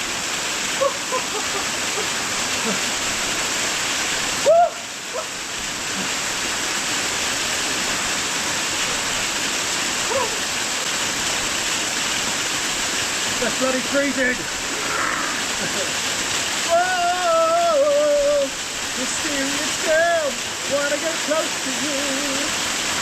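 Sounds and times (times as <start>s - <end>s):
waterfall rushing: 0.0s - 23.0s
man whooping and yelping: 4.4s - 5.4s, 10.0s - 10.5s, 16.6s - 18.6s.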